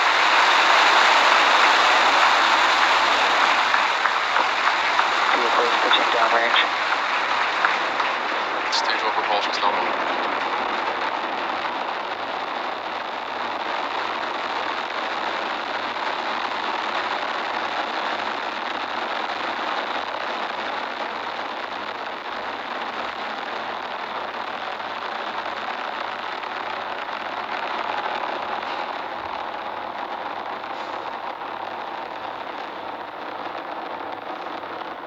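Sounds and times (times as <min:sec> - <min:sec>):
rocket engines firing: 0:00.0 - 0:16.8, 0:26.1 - 0:35.0.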